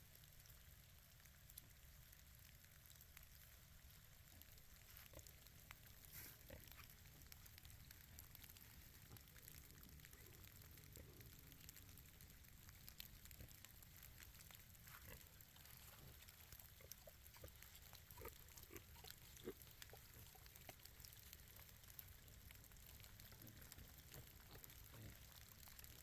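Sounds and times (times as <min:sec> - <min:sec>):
pigs grunting: 0:14.8 - 0:21.6, 0:23.2 - 0:25.5.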